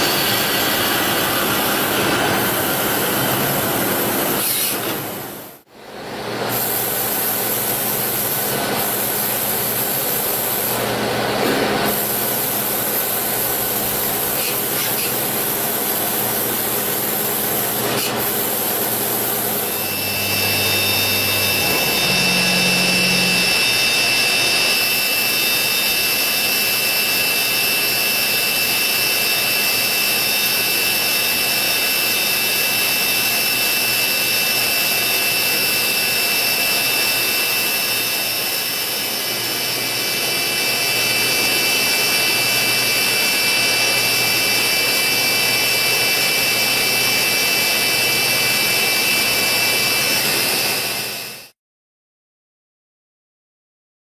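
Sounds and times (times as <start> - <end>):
lathe cutting noise: 0.0 - 4.8, 11.9 - 51.5
high whining tones: 19.6 - 27.2.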